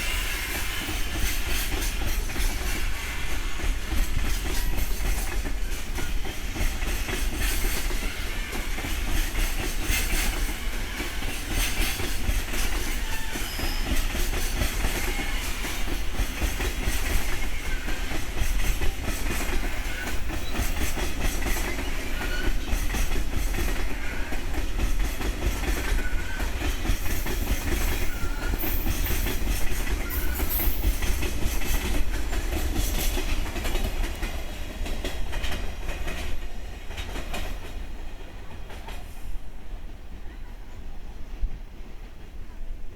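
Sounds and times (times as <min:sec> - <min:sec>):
train wheels rumbling on rails: 0:00.0 - 0:42.9
clacks over rail joints: 0:00.8 - 0:39.2
faint wheel squeals: 0:13.0 - 0:14.1.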